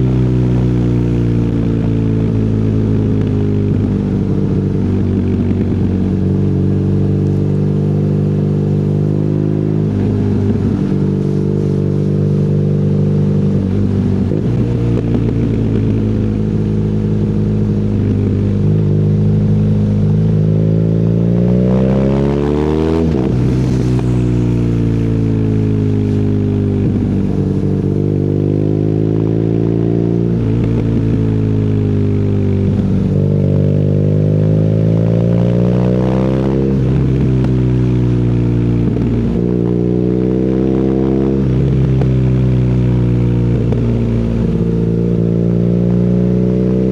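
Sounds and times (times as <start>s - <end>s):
motorcycle engine shifting gears: 0.0s - 46.9s.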